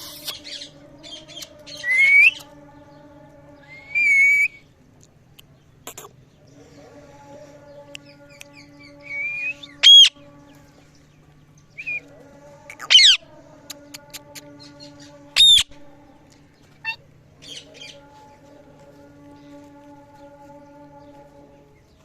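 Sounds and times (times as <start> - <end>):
parrot squawking: 0.0 - 0.7, 9.6 - 10.2, 12.7 - 13.2, 15.4 - 15.7.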